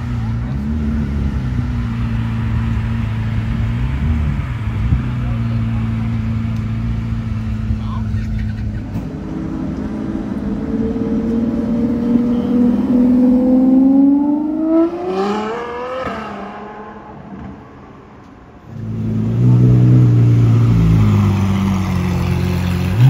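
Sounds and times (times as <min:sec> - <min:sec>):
car engine idling: 0:00.0 - 0:13.2, 0:17.7 - 0:23.0
sports car accelerating away: 0:08.6 - 0:23.0.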